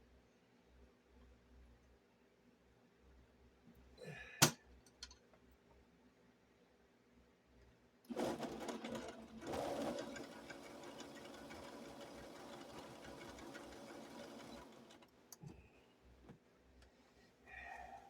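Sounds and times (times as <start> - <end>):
sewing machine stitching: 8.1 - 15.1.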